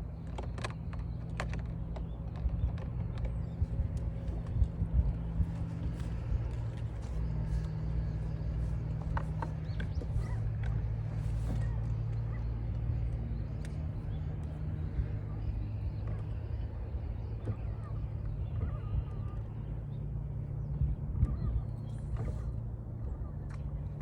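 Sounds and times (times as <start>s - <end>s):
low engine hum: 0.0s - 24.0s.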